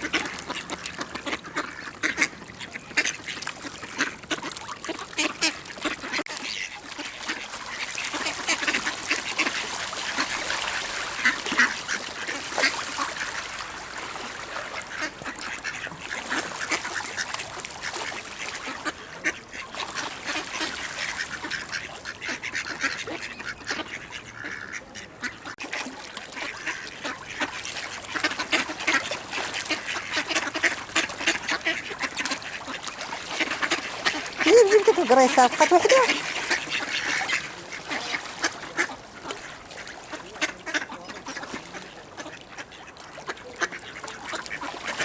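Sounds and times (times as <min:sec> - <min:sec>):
ducks quacking: 0:00.0 - 0:13.5, 0:14.7 - 0:45.0.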